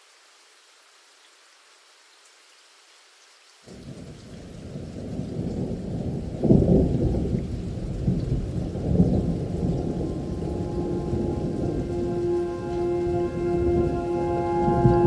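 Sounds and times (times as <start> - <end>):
steady rain: 0.0 - 15.0
thunder rumbling: 3.7 - 15.0.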